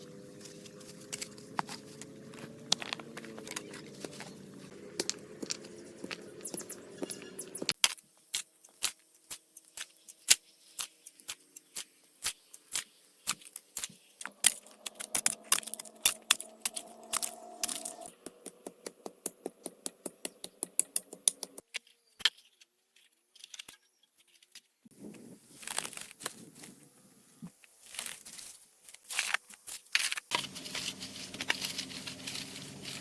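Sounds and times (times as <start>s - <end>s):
sharp clicks and taps: 14.3s - 21.6s.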